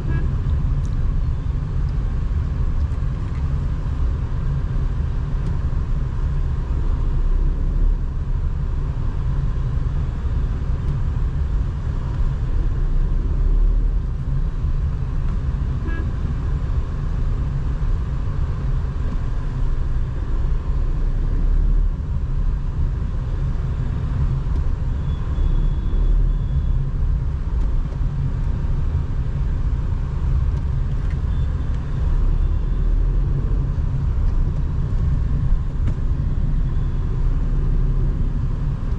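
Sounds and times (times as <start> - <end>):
faint horn toots: 0.0 - 0.4, 15.8 - 16.2
car engine and road rumble: 0.0 - 38.9.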